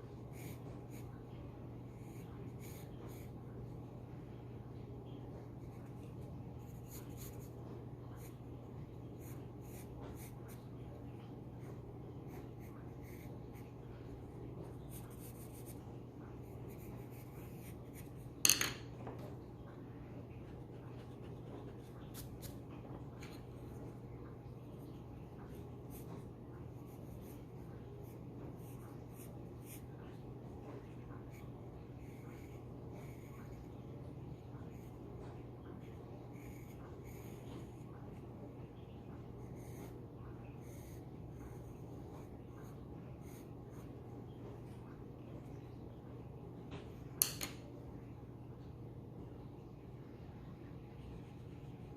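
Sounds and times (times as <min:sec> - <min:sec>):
pencil scratching on paper: 0:00.0 - 0:04.0, 0:05.3 - 0:18.4, 0:20.1 - 0:38.4, 0:39.2 - 0:44.8
steady low hum: 0:00.0 - 0:51.9.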